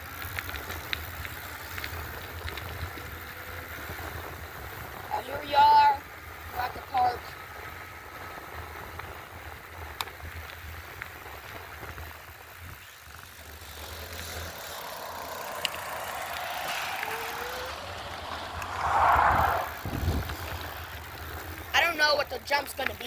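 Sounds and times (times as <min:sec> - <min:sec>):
low wind rumble on microphone: 0:14.3 - 0:21.7.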